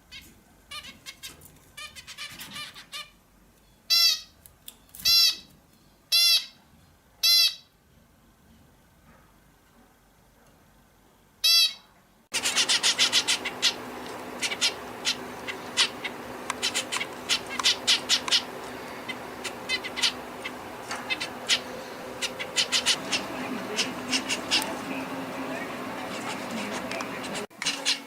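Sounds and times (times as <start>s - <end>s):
background hum: 0.0s - 28.0s
bird chirping: 11.4s - 28.0s
bird call: 12.4s - 28.0s.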